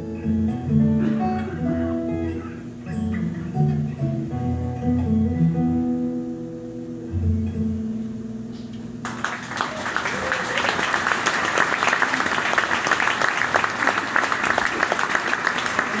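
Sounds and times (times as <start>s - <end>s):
guitar chord ringing: 0.0s - 8.5s
audience applause: 9.0s - 16.0s.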